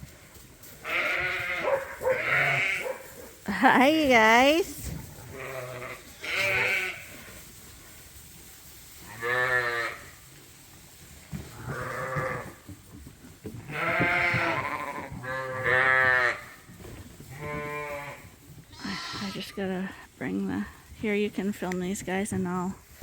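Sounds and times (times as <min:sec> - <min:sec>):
sheep bleating: 0:00.8 - 0:03.0, 0:05.3 - 0:07.1, 0:09.1 - 0:10.0, 0:11.6 - 0:12.5, 0:13.7 - 0:16.4, 0:17.3 - 0:19.6.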